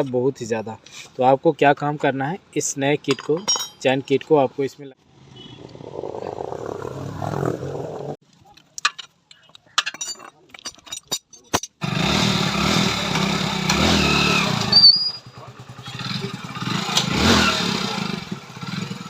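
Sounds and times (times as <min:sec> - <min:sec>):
motorcycle engine revving: 0:05.2 - 0:08.2, 0:11.8 - 0:19.0.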